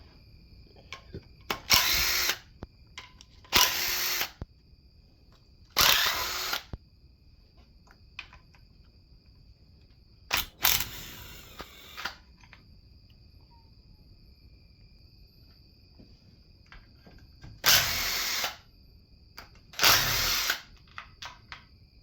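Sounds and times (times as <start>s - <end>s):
power drill whirring: 1.5s - 2.5s, 3.5s - 4.4s, 5.7s - 6.8s, 10.3s - 12.2s, 17.6s - 18.6s, 19.8s - 20.7s.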